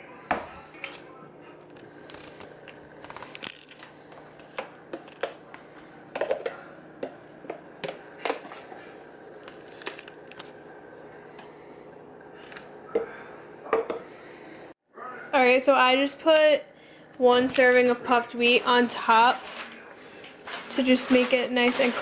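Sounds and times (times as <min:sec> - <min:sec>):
utensils and containers clinking: 0:17.5 - 0:22.0.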